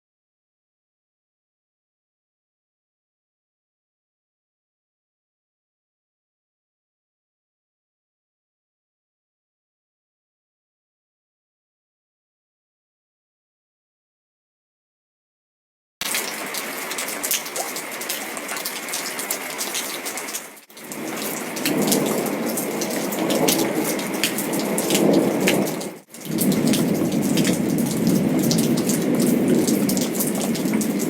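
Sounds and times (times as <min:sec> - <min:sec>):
heavy rain pattering: 0:16.0 - 0:31.0.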